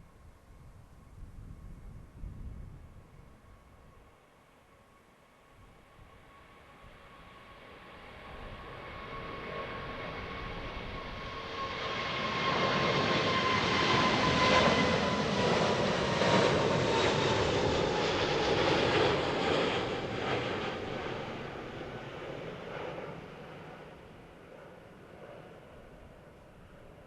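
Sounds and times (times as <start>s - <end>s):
jet airliner passing by: 5.6s - 27.0s.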